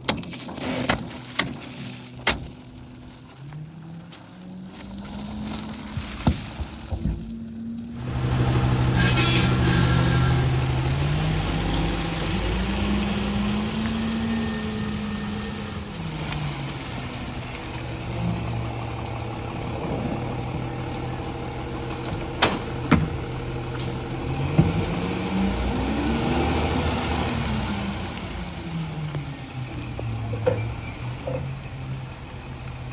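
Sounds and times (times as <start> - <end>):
garbage truck engine revving: 7.2 - 28.9.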